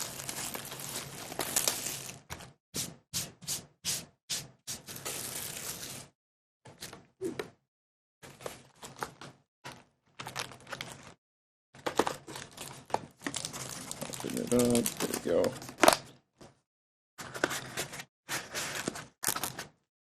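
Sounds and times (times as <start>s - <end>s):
plastic shrink wrap tearing: 0.0s - 2.3s, 13.3s - 16.0s.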